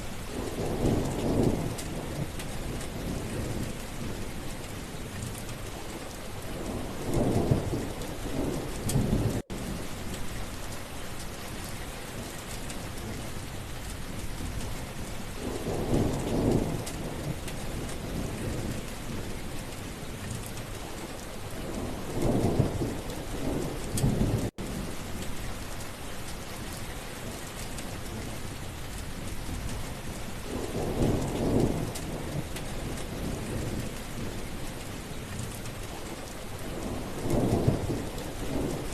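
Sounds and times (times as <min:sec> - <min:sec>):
steady rain: 0:00.0 - 0:38.9
rolling thunder: 0:21.7 - 0:24.7, 0:36.7 - 0:38.9.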